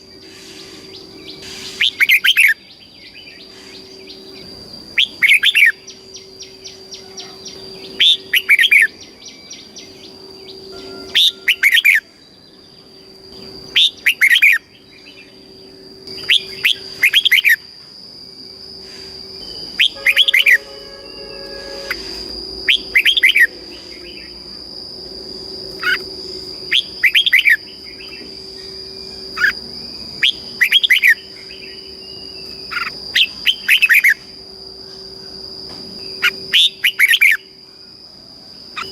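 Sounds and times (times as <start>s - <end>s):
bulbul singing warbled phrases: 5.0s - 12.7s, 19.4s - 24.4s.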